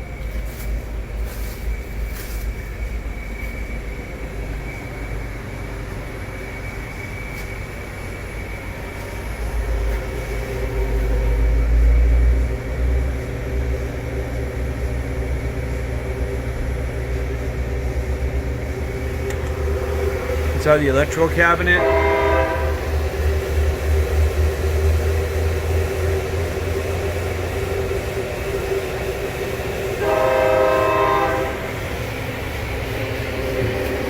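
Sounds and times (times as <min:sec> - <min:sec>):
faint high whine: 0:00.0 - 0:24.4
lathe machine hum: 0:00.0 - 0:34.0.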